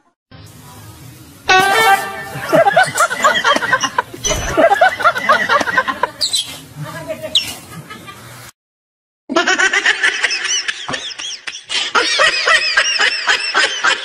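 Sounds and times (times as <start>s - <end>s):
people laughing: 2.3s - 6.3s, 7.6s - 8.3s, 9.3s - 14.0s.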